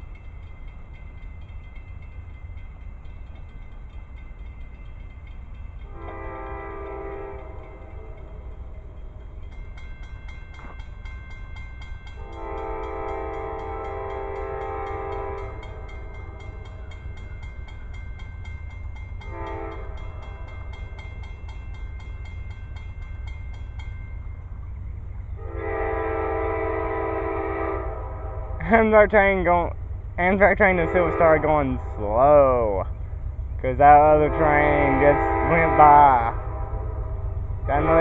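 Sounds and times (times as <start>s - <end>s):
low rumble of approaching train: 0.0s - 38.0s
locomotive chime horn blasts: 5.8s - 8.4s, 12.1s - 17.0s, 19.2s - 21.1s, 25.4s - 32.7s, 33.7s - 38.0s.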